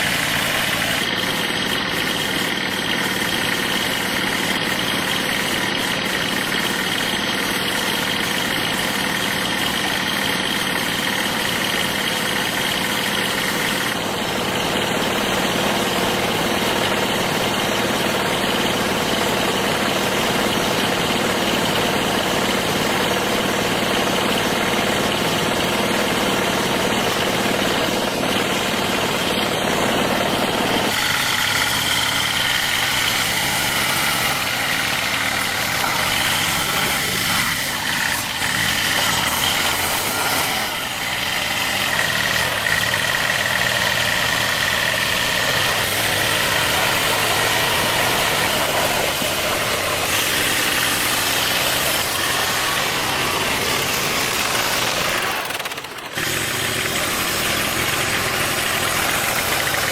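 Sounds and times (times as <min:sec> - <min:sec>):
motor running: 0:00.0 - 0:59.9
whining tones: 0:29.8 - 0:59.9.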